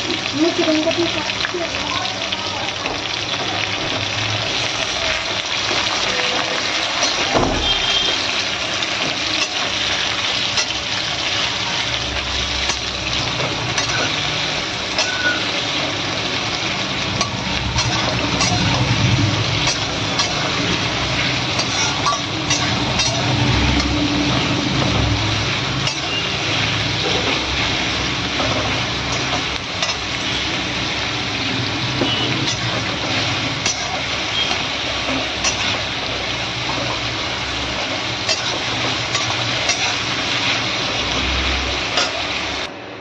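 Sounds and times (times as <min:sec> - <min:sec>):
onions sizzling in oil: 0:00.0 - 0:42.7
metal spatula scraping pan: 0:12.7 - 0:15.6, 0:17.1 - 0:25.2, 0:25.8 - 0:27.7, 0:38.2 - 0:40.6.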